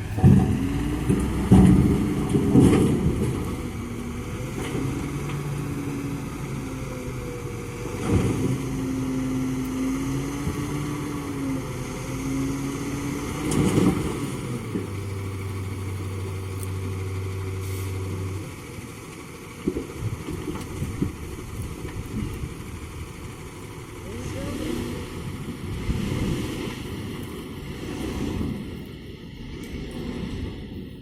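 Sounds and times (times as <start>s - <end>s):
truck engine running: 0.0s - 31.0s
scattered knocks: 0.2s - 3.6s.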